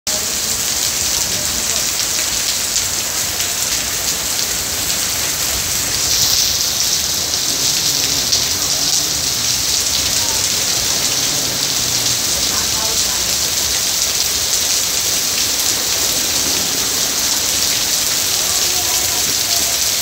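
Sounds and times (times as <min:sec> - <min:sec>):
heavy rain on foliage: 0:00.1 - 0:20.0.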